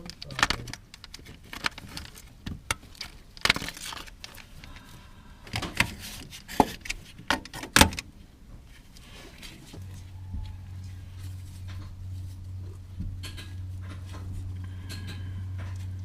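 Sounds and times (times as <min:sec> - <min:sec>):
tools clicking and knocking on engine parts: 0:13.0 - 0:16.0.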